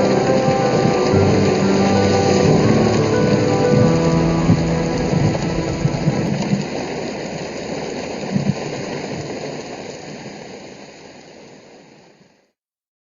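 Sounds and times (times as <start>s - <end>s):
rain falling: 0.0s - 12.4s
short low thump: 2.4s - 6.6s.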